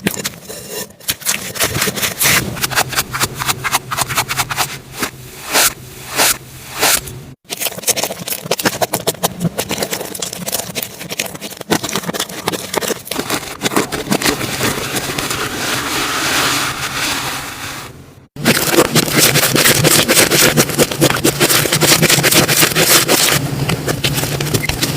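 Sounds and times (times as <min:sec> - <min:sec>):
slime squishing: 0:00.0 - 0:17.5, 0:18.4 - 0:24.9
slime clicking and crackling: 0:05.5 - 0:15.3, 0:18.4 - 0:24.9.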